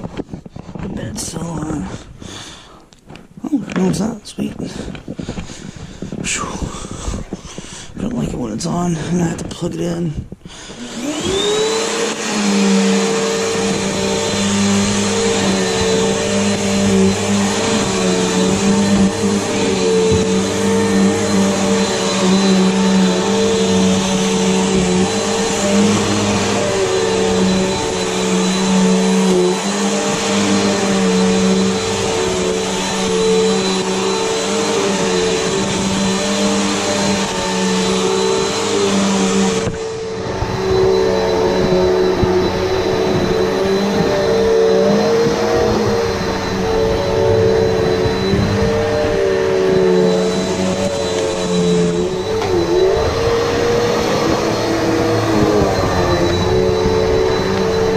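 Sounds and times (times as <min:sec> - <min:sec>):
upright vacuum cleaner running: 0:00.0 - 0:57.9.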